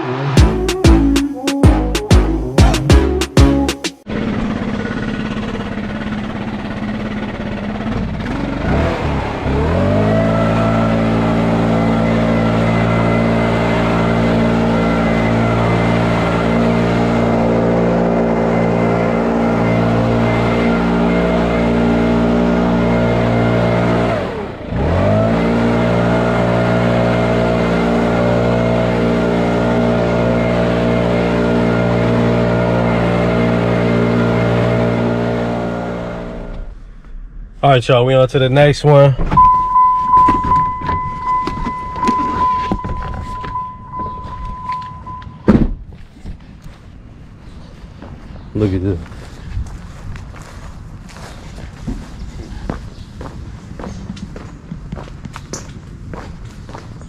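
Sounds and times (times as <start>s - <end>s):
lawn mower engine running: 3.6s - 36.6s.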